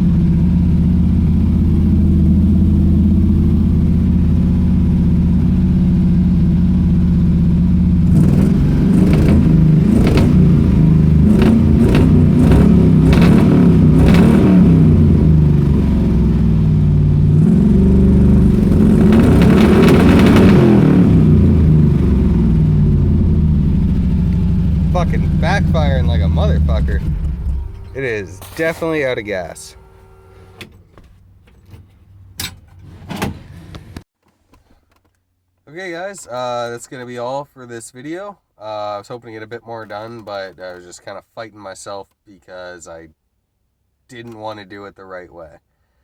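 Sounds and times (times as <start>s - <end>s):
car engine idling: 0.0s - 32.4s
exhaust backfire pops: 8.0s - 31.1s.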